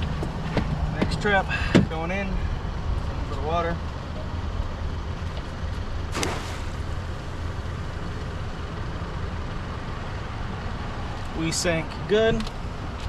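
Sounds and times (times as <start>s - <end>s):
boat motor idling: 2.8s - 9.4s
trap splashing into water: 6.1s - 7.2s.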